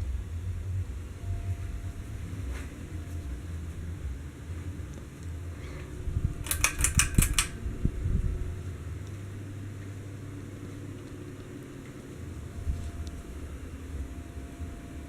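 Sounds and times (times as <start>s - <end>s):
ceiling fan humming: 0.0s - 15.0s
sharp clicks: 6.4s - 7.6s.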